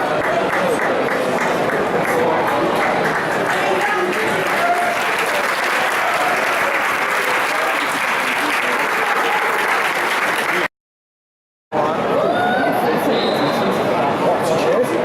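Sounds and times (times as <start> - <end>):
crowd clapping: 0.0 - 10.7
crowd voices: 0.0 - 10.7, 11.7 - 15.0.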